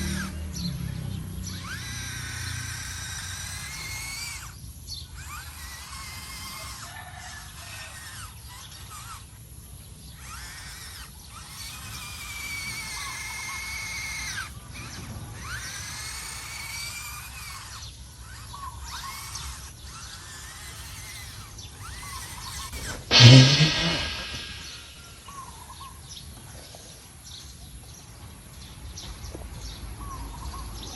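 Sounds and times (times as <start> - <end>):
electric motor and gearbox whining: 0.0 - 25.2
low outdoor background: 0.0 - 25.7
loud ringing hit: 23.1 - 25.3.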